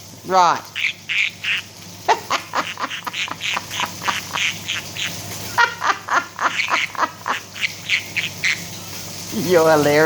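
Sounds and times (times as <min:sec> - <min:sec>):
parrot chattering squawks: 0:00.5 - 0:05.4, 0:06.4 - 0:08.8.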